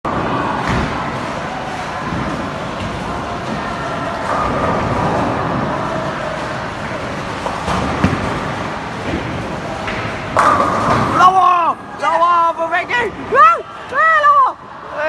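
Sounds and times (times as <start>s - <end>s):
bowling balls rolling: 0.1s - 11.3s.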